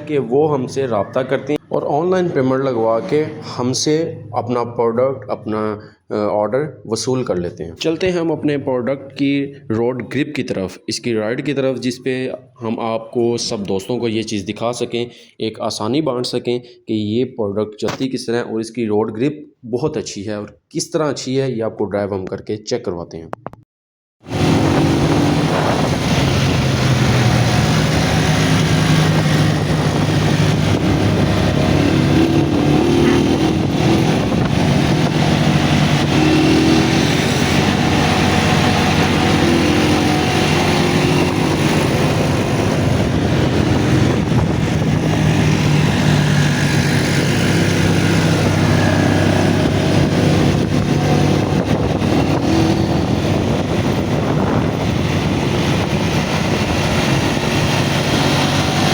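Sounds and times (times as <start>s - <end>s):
road and wind noise: 0.0s - 5.5s, 24.2s - 58.9s
motorcycle engine running: 24.3s - 58.9s.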